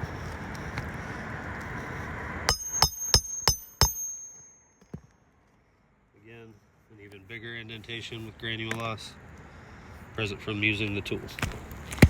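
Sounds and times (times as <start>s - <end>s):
hammer ringing on metal: 2.5s - 4.8s.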